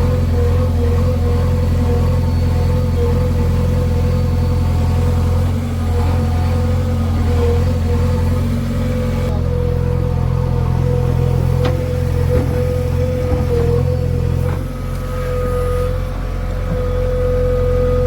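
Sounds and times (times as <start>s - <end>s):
heavy diesel engine droning: 0.0s - 18.0s.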